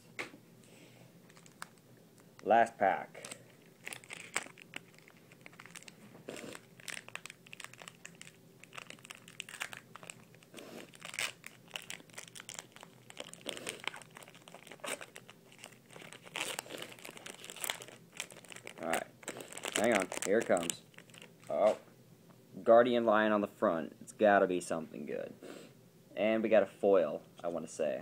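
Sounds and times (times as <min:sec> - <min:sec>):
foil wrapper crinkling and tearing: 0:01.3 - 0:02.5, 0:03.2 - 0:21.5.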